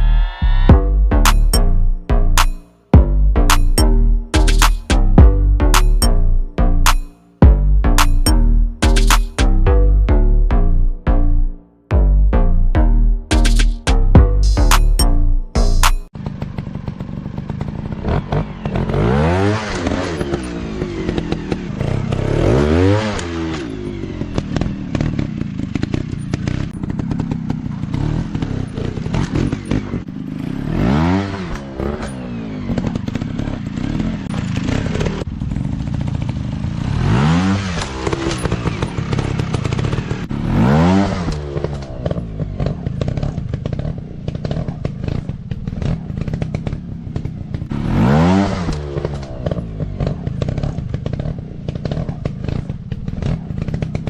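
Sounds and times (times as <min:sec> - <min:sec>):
dirt bike engines revving: 0:15.5 - 0:54.0.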